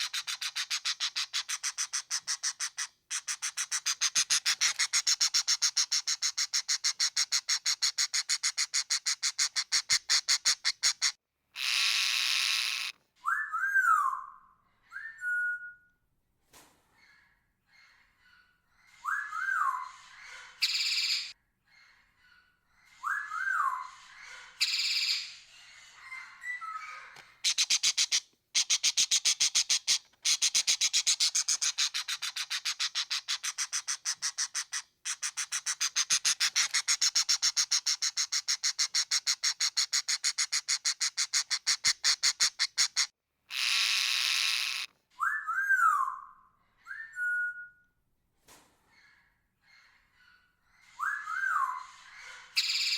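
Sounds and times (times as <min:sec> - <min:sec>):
parrot chattering: 0:00.0 - 0:12.9, 0:27.4 - 0:44.9
parrot squawks: 0:00.0 - 0:13.7, 0:24.6 - 0:46.3.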